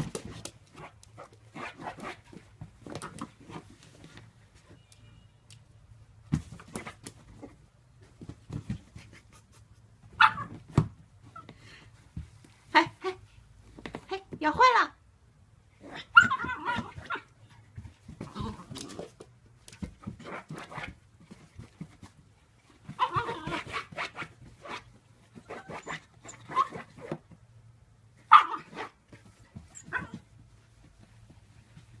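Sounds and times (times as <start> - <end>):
dog whining and barking: 15.9 - 17.4, 22.9 - 23.9, 25.4 - 26.9, 29.7 - 30.2.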